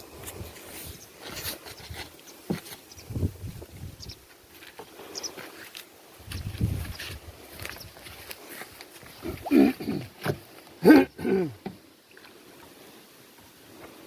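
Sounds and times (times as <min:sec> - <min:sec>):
person making wordless vocal sounds: 0:09.2 - 0:11.7.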